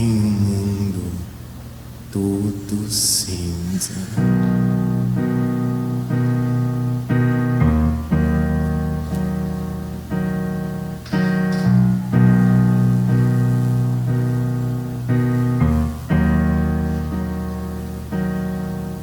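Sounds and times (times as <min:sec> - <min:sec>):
piano playing slow chords: 0:04.2 - 0:19.0.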